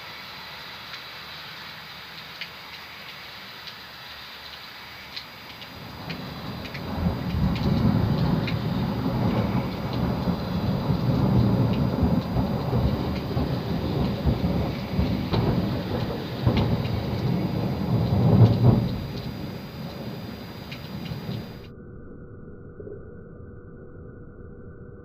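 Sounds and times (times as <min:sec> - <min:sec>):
steady rain: 0:00.0 - 0:21.7
thunder rumbling: 0:05.6 - 0:21.7.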